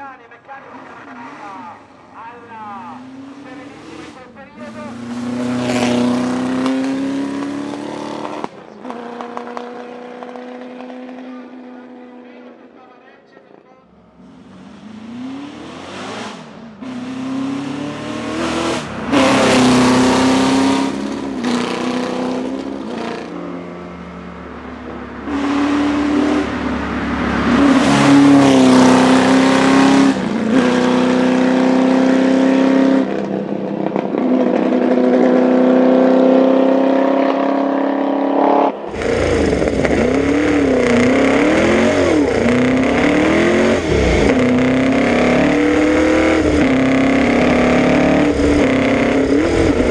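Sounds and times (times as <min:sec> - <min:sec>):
racing engine revving hard: 0:02.7 - 0:11.7, 0:14.0 - 0:49.9.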